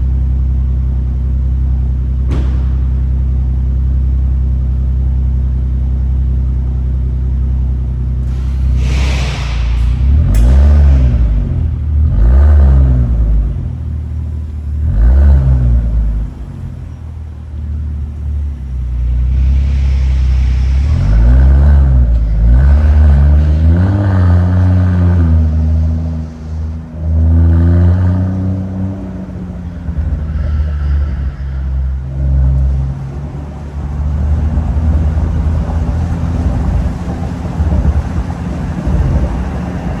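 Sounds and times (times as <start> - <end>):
engine revving: 8.2 - 40.0.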